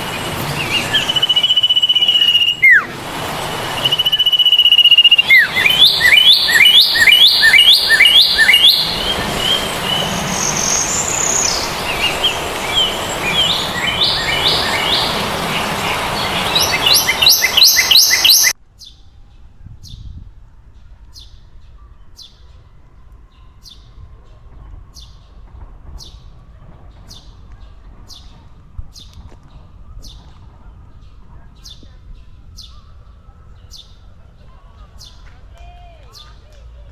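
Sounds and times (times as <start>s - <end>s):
background hiss: 0.0s - 18.6s
birds chirping: 0.0s - 19.0s.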